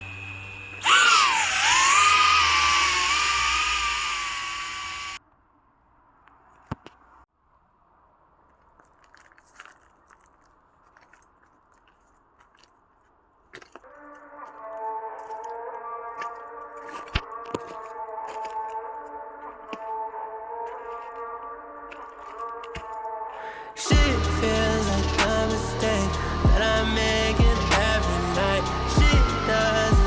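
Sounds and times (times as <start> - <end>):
drone motors whining: 0.0 - 5.2, 23.8 - 30.0
steady tonal sound: 23.8 - 30.0.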